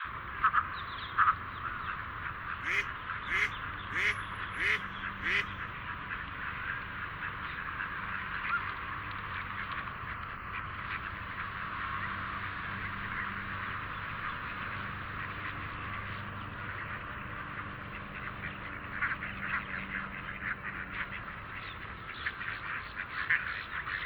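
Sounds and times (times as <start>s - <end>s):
chatter of bird calls: 2.6s - 5.6s
ducks quacking: 2.6s - 5.6s.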